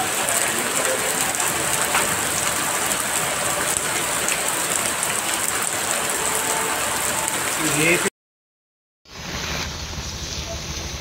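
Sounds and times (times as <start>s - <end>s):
heavy rain on stone paving: 0.0s - 8.1s.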